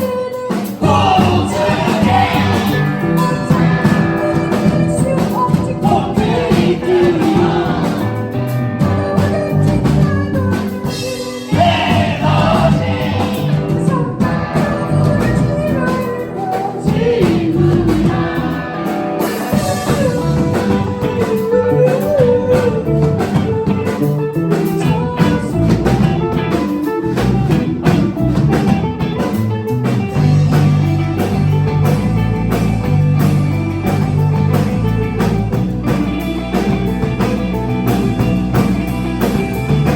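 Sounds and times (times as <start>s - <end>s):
person singing: 0.0s - 26.9s
rock band playing live: 0.0s - 39.9s.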